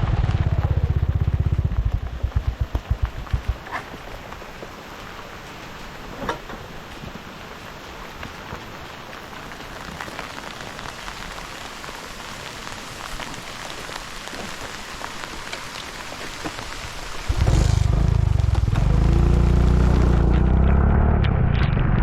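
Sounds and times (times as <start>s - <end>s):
engine running: 0.0s - 3.6s, 17.3s - 22.0s
steady rain falling: 0.0s - 21.3s.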